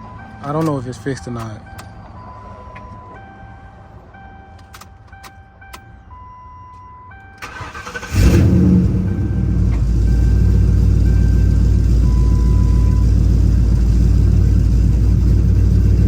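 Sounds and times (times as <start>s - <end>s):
car starter cranking: 7.4s - 8.8s
car engine idling loudly: 9.5s - 16.0s.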